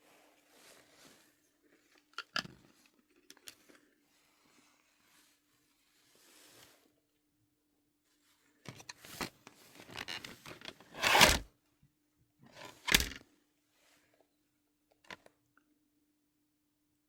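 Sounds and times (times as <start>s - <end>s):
packaging scraping and rustling: 9.8s - 11.5s.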